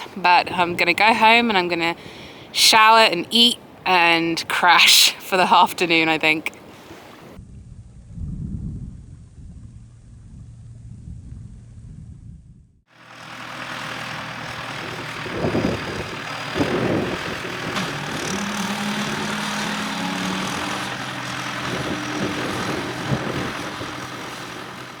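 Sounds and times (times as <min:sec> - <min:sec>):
engine running: 0:12.9 - 0:25.0
loud bumps: 0:14.1 - 0:25.0.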